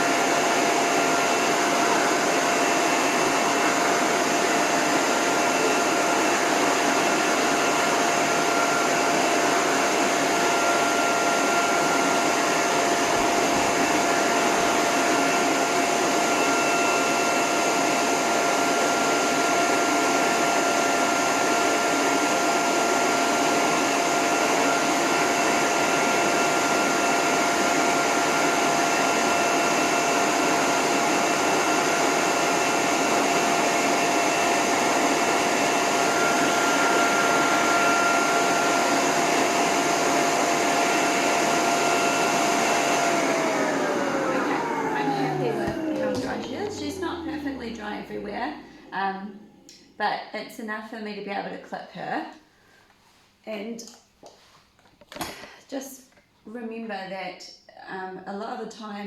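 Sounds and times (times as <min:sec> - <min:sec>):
dryer air rushing: 0:00.0 - 0:49.7
motor whine: 0:41.5 - 0:49.0.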